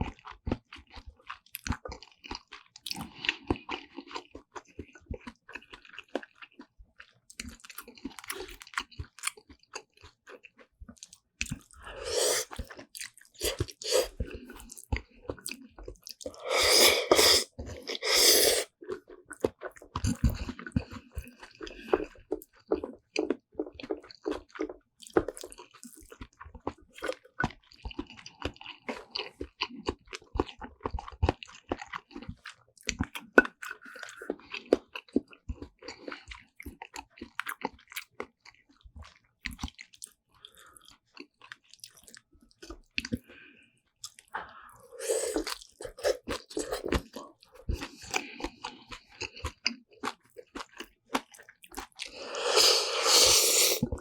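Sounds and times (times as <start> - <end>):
close chewing and crunching: 0.0 - 54.0
wet mouth clicks: 51.4 - 54.0.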